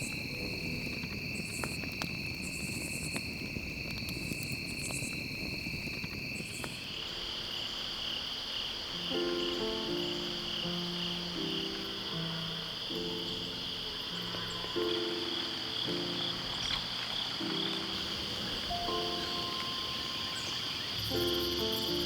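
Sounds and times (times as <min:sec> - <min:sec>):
crickets and insects trilling: 0:00.0 - 0:22.0
music with picked notes: 0:09.0 - 0:22.0.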